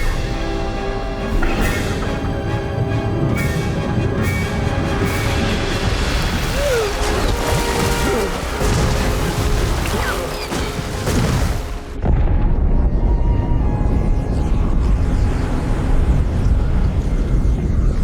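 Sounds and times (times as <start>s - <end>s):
film music: 0.0s - 18.0s.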